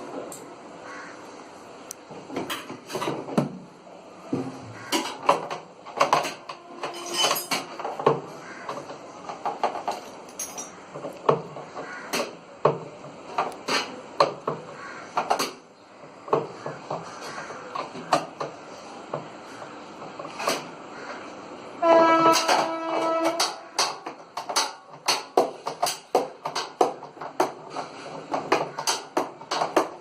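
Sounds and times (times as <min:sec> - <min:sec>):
hand tools clinking on metal parts: 0:04.9 - 0:08.1, 0:09.5 - 0:10.8.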